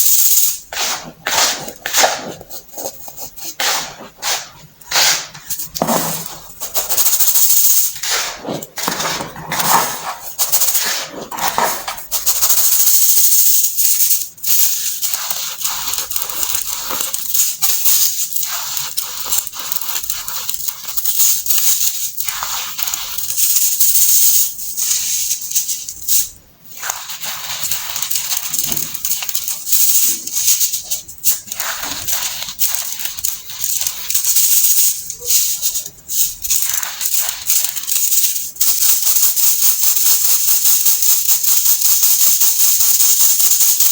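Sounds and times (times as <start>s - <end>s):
baking soda crunching by hand: 0.0s - 12.4s, 14.5s - 23.4s, 24.8s - 38.6s.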